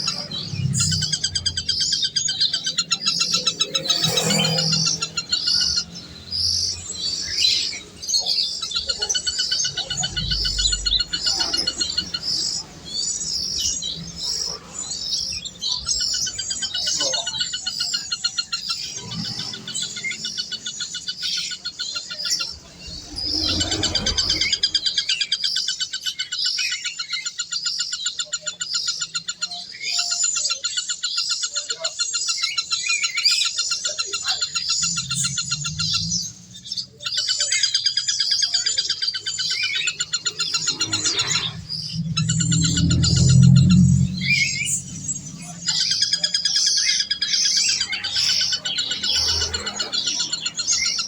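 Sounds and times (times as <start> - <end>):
birds chirping and trilling: 0.0 - 51.0
low hum: 40.1 - 46.4.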